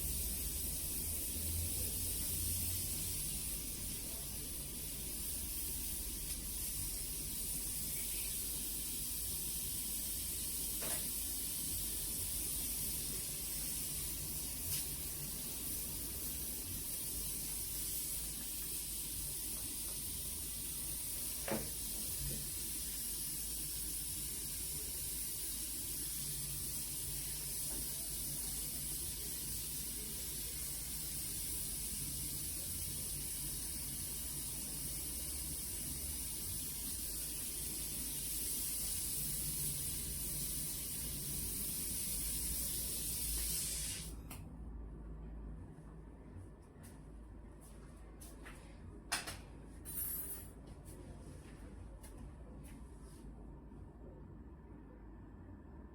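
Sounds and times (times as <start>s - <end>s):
gas hissing: 0.0s - 44.2s.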